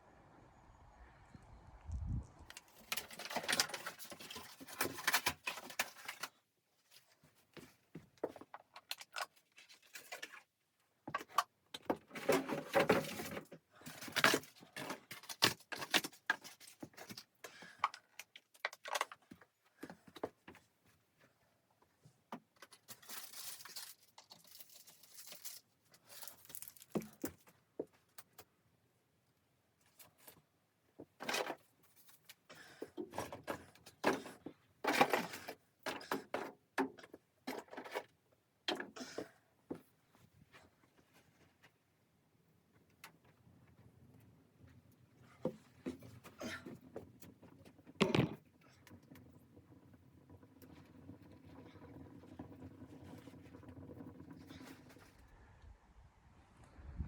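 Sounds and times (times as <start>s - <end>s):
handling rustling and clatter: 2.5s - 28.6s.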